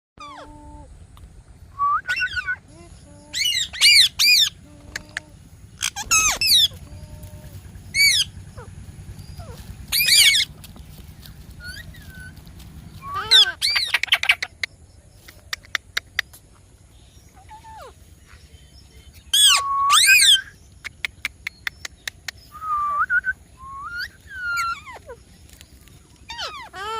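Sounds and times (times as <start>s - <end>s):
parakeet squawking: 3.3s - 8.7s, 9.3s - 10.5s, 13.0s - 14.5s, 26.3s - 26.9s.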